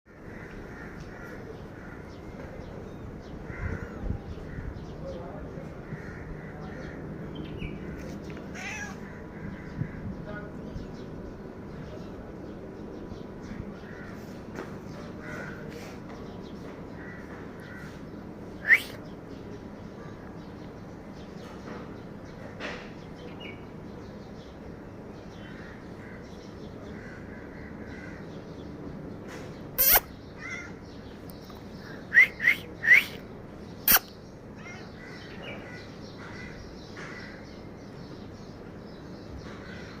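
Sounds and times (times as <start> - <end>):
faint bird chirping: 0.1 - 40.0
short loud animal calls: 8.6 - 9.1, 29.8 - 30.1, 33.9 - 34.1.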